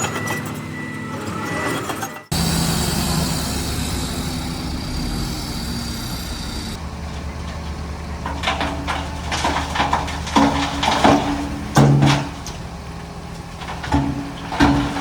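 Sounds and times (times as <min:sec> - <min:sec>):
heavy diesel engine running: 0:00.0 - 0:15.0
metallic knocks and clanks: 0:07.4 - 0:12.6, 0:13.6 - 0:15.0.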